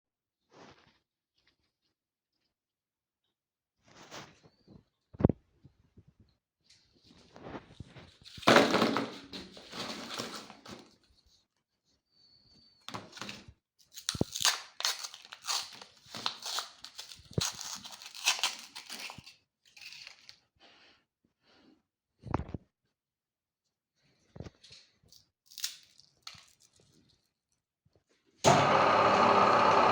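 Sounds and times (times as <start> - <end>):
crinkling and crunching: 7.2 - 11.2, 12.9 - 20.5, 24.7 - 27.4.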